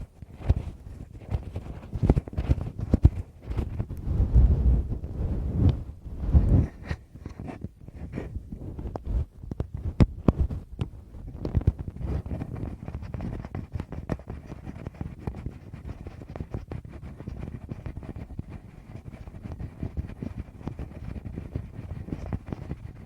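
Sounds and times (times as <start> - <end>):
muffled thumps on microphone: 0.0 - 15.5
light taps and scratches on microphone: 0.0 - 23.0.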